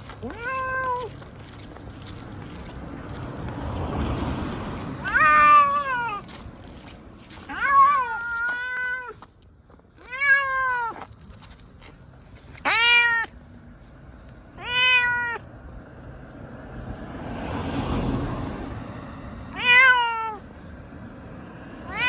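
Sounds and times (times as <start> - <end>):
cat meowing: 0.0 - 1.1, 5.0 - 6.3, 7.4 - 9.2, 10.0 - 11.0, 12.6 - 13.4, 14.5 - 15.5, 19.5 - 20.4, 21.8 - 22.0.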